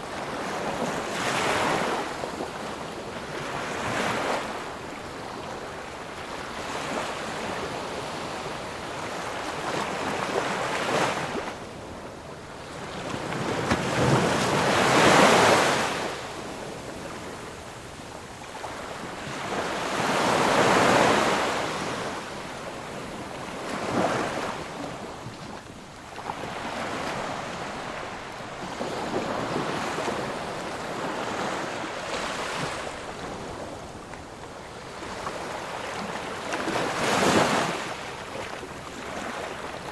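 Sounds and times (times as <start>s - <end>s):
ocean waves breaking: 12.6s - 39.9s.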